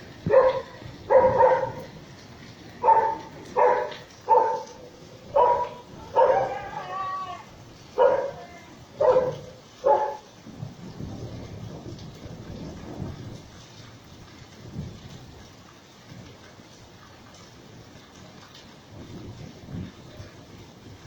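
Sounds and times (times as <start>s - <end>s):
dog barking: 0.2s - 1.9s, 2.8s - 7.3s, 8.0s - 10.3s.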